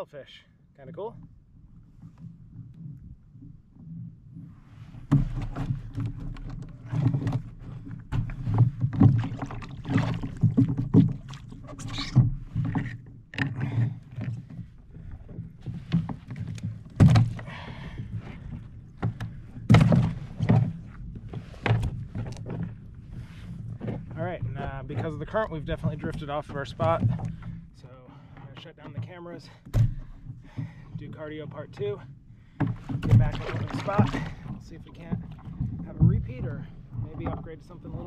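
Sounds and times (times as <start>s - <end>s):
water and wind rumble: 0.0s - 38.0s
knocks against plastic kayak hull: 5.0s - 11.4s, 15.8s - 17.5s, 19.0s - 20.9s, 29.0s - 30.8s.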